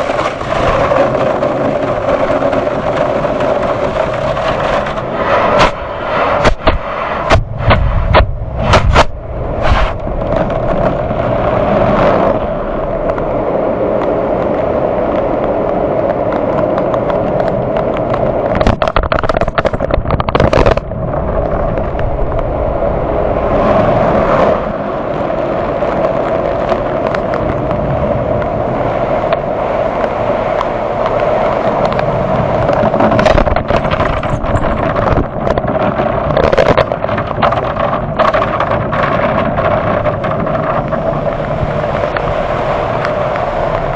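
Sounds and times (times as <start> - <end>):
steady machine drone: 17.1 - 43.9.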